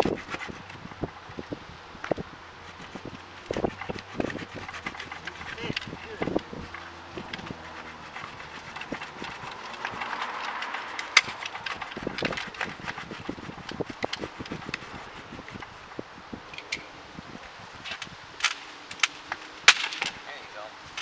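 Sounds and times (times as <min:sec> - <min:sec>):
rustling brush: 0:00.0 - 0:16.4
wood snapping and crackling: 0:02.0 - 0:14.9, 0:17.8 - 0:20.3.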